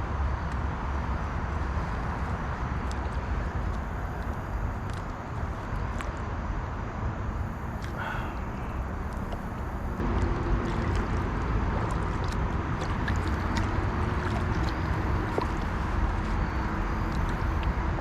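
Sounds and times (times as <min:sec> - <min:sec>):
water splashing around kayak: 0:07.5 - 0:18.0.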